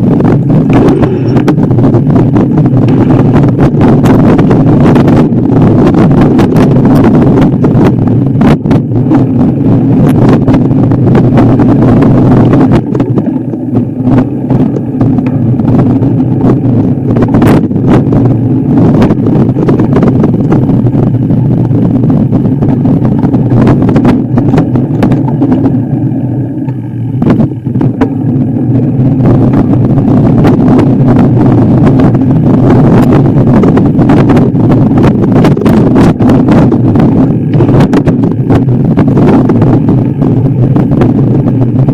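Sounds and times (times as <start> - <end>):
vehicle engine running hard: 0.0 - 41.9
sharp knocks and rattles: 22.6 - 25.8.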